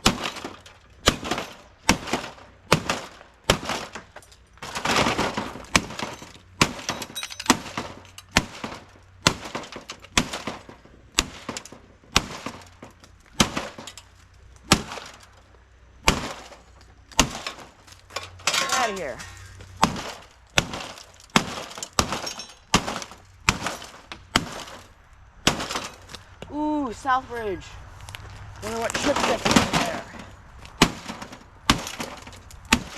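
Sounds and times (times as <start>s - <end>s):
hard blows smashing plastic: 0.0s - 26.5s, 28.6s - 32.9s
crunching and breaking: 0.0s - 26.6s, 27.9s - 32.9s.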